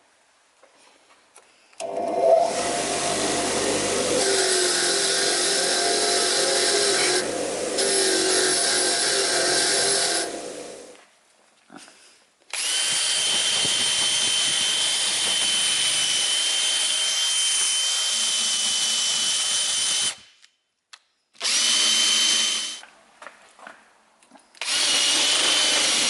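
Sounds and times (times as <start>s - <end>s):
power tool high whine: 1.8s - 10.9s.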